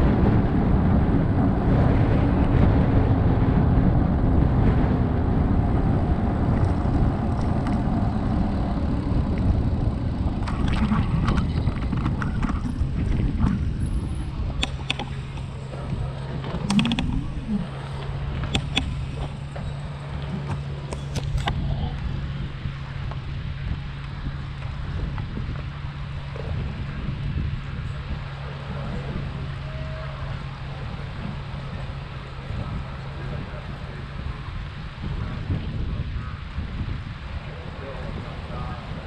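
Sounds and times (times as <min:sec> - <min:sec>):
low rolling rumble: 0:00.0 - 0:39.0
steady low hum: 0:00.0 - 0:39.0
wind buffeting microphone: 0:00.0 - 0:39.0
sharp clicks: 0:14.6 - 0:17.7, 0:18.4 - 0:19.5.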